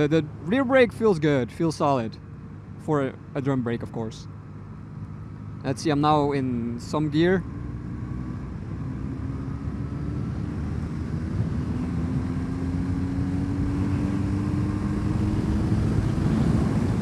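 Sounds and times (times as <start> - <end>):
road and wind noise: 0.0 - 17.0
motorcycle engine accelerating: 6.8 - 17.0.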